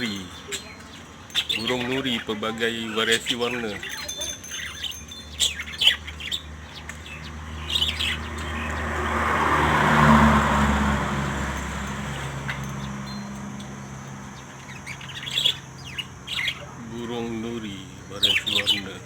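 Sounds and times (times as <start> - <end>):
parrots chirping and squawking: 0.0 - 10.1, 11.3 - 19.0
vehicle passing: 5.2 - 19.0.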